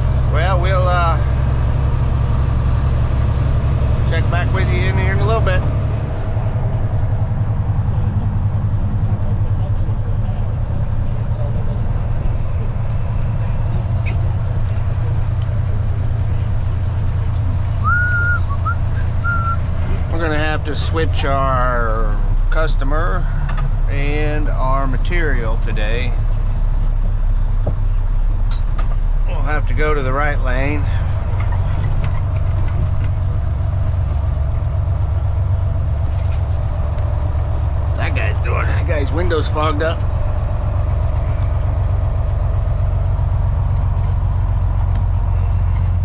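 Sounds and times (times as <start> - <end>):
truck diesel engine droning: 0.0 - 46.0.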